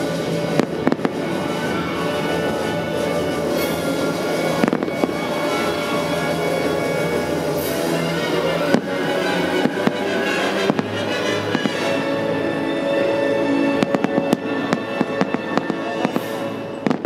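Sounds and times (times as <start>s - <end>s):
show music with held notes: 0.0s - 17.0s
firework shells bursting: 0.4s - 1.5s, 3.5s - 6.3s, 13.8s - 17.0s.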